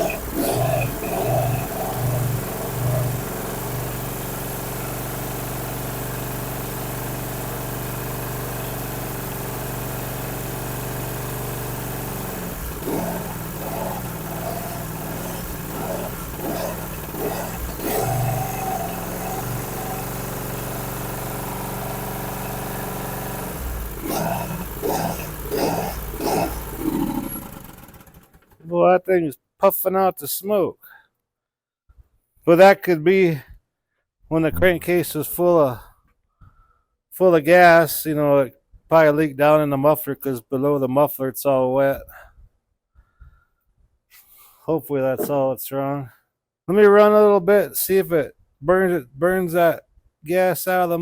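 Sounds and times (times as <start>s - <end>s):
mower engine running: 0.0s - 28.6s, 34.5s - 35.3s.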